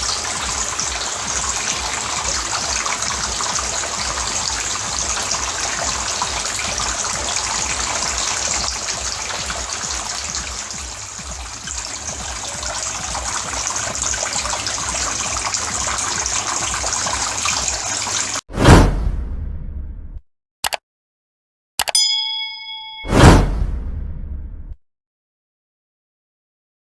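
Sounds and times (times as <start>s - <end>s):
water splashing and trickling: 0.0s - 18.5s
loud ding: 21.9s - 23.8s.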